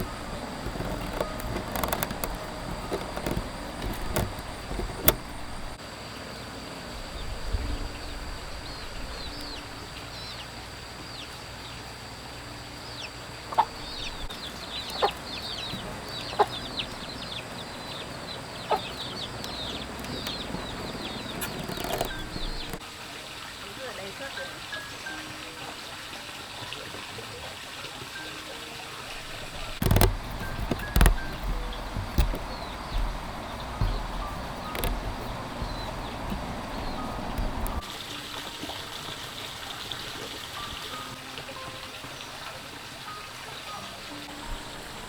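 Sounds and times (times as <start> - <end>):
clicking and rustling: 0.0 - 5.8, 18.7 - 22.8, 29.3 - 37.9
chicks peeping: 12.8 - 22.8, 29.6 - 37.8
sharp knocks: 29.8 - 37.8.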